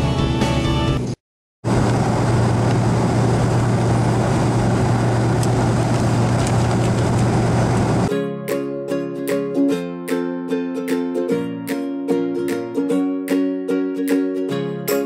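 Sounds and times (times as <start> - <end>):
background music: 0.0 - 1.1, 8.1 - 15.0
airliner cabin rushing noise: 1.7 - 8.1
low hum of jet engines: 1.7 - 8.1.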